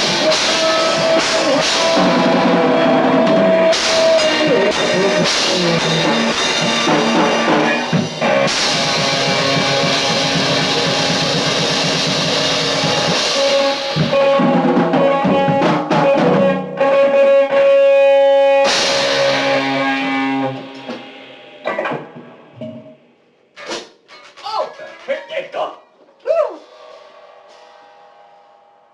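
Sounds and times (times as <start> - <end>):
cymbal crash: 0.0 - 15.6, 18.6 - 23.9, 26.6 - 28.9
rock band playing: 0.0 - 22.8.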